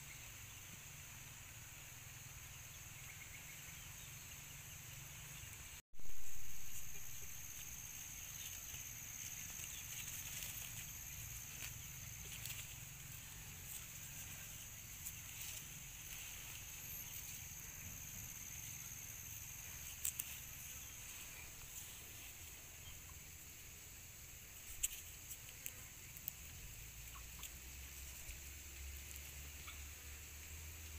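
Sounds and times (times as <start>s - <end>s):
high-pitched hum: 6.0s - 23.0s.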